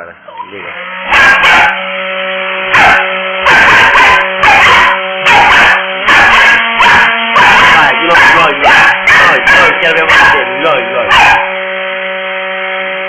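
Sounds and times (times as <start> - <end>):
hair dryer motor hum: 0.4 - 13.0
dog barking: 1.1 - 1.8, 2.7 - 11.5.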